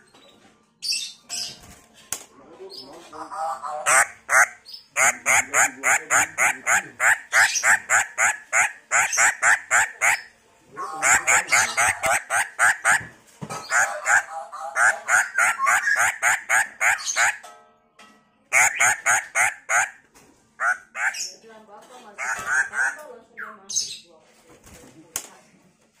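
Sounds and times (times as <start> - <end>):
bird calling harsh notes: 3.8 - 10.3, 11.0 - 17.4, 18.5 - 20.0.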